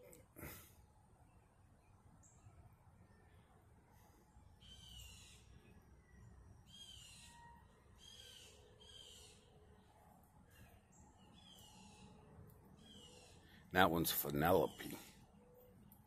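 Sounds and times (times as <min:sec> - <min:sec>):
bird calling raspy notes: 0:04.0 - 0:09.6, 0:10.5 - 0:15.3.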